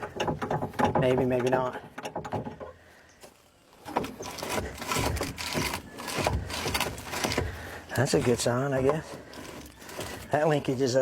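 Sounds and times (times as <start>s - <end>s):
metal linkage clunking and rattling: 0.0s - 2.7s.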